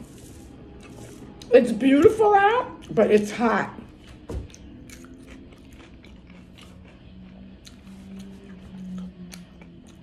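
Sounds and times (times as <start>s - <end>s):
wet chewing mouth sounds: 4.4s - 10.0s.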